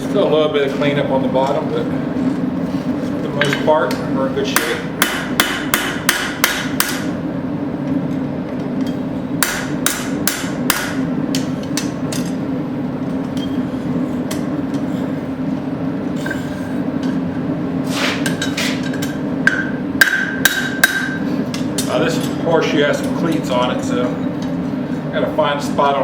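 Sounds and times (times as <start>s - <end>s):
hammer striking steel on anvil: 4.6s - 7.1s, 8.8s - 12.4s, 18.2s - 22.4s.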